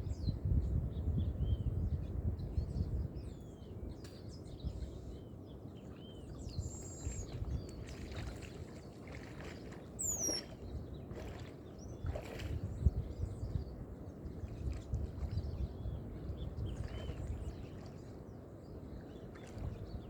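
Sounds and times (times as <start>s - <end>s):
birds chirping: 3.1s - 20.0s
water lapping: 6.0s - 13.4s, 14.1s - 20.0s
clear falling bird call: 10.0s - 10.6s.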